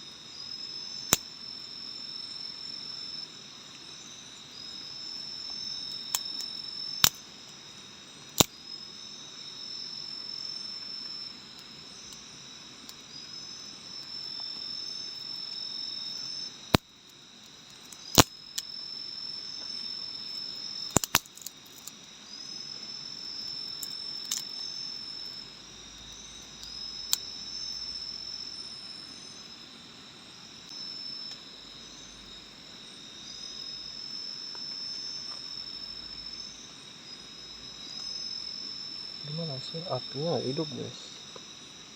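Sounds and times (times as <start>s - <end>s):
high insect trill: 0.0s - 41.9s
long rising insect calls: 0.0s - 41.9s
sharp clicks: 20.9s - 21.5s.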